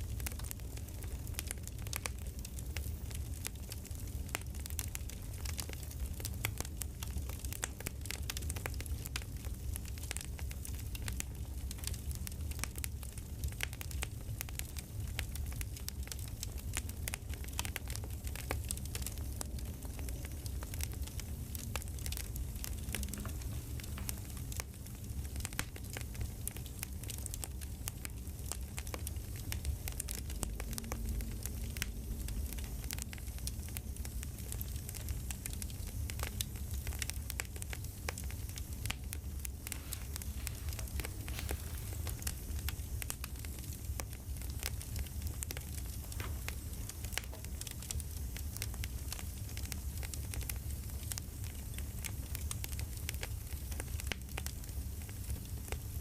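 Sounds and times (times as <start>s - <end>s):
low fire rumble: 0.0s - 56.0s
wood fire crackling and popping: 0.0s - 56.0s.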